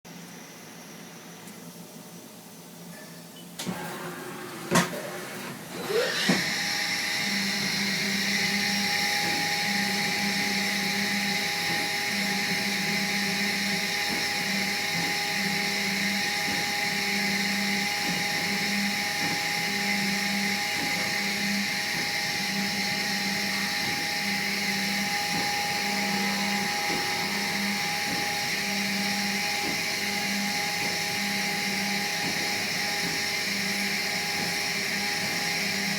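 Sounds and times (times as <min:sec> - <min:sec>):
small motor whirring: 0:08.4 - 0:33.1
pulsing low hum: 0:09.9 - 0:32.4.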